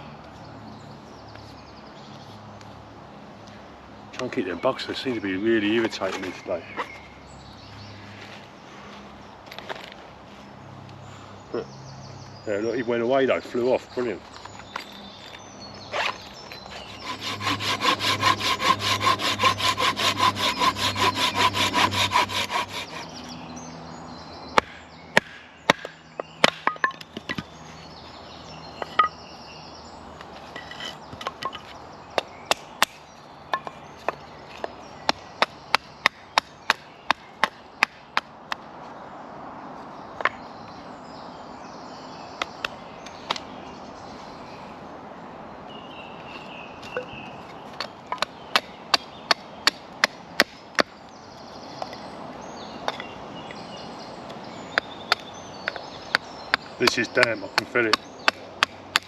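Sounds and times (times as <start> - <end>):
hand saw cutting wood: 16.0 - 23.3.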